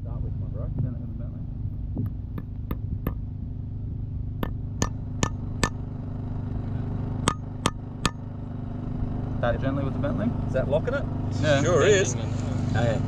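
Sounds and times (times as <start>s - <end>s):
steady low hum: 0.0s - 9.3s
hammer taps on metal: 2.0s - 3.2s, 4.4s - 5.8s, 7.3s - 8.2s.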